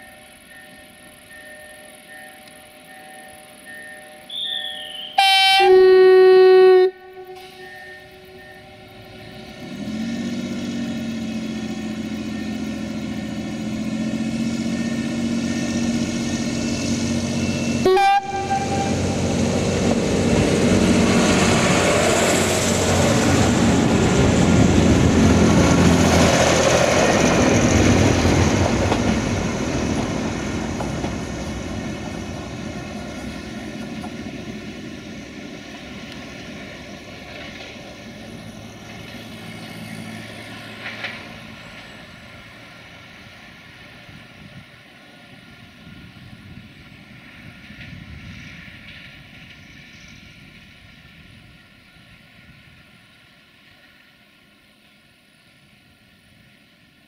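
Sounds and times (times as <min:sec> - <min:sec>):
train wheel noise: 0:00.0 - 0:05.9, 0:06.8 - 0:55.0
diesel train engine: 0:00.0 - 0:57.0
train horn blast: 0:04.3 - 0:08.6, 0:17.7 - 0:19.6.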